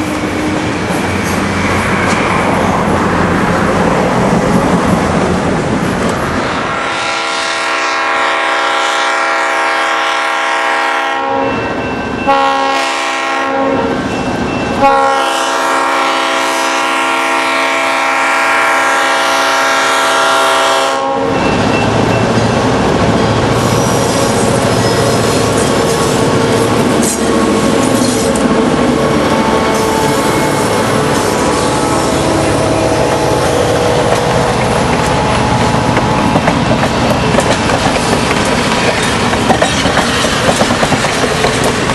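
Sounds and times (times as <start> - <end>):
rumble of moving train: 0.0 - 41.9
locomotive air horn blasts: 6.4 - 11.7, 12.3 - 14.0, 14.8 - 21.4, 29.0 - 34.8.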